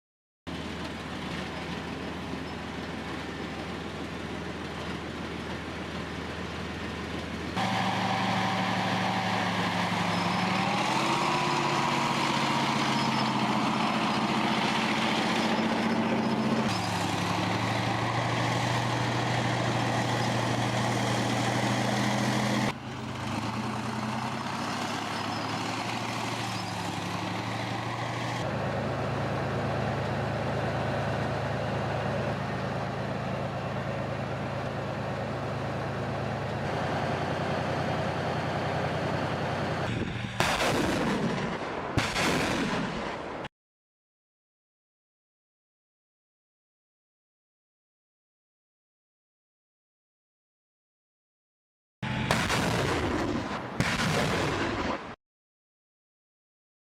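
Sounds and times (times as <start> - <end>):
heavy diesel engine running: 0.5 - 42.7, 52.0 - 54.6.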